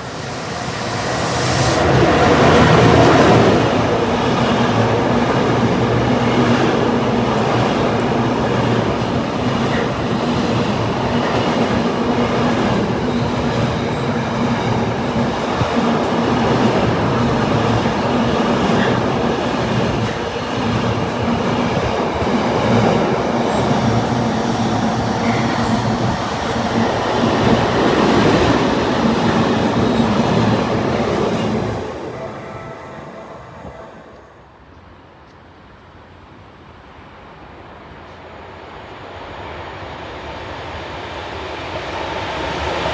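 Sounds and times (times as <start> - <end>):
train wheels clicking on rails: 0.0 - 32.1.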